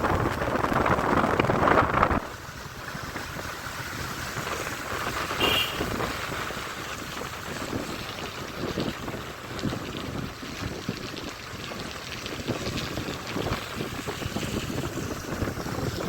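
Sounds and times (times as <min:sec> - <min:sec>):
motorcycle road noise: 0:00.0 - 0:16.0
wind buffeting microphone: 0:00.0 - 0:16.0
short high beep: 0:05.4 - 0:05.8.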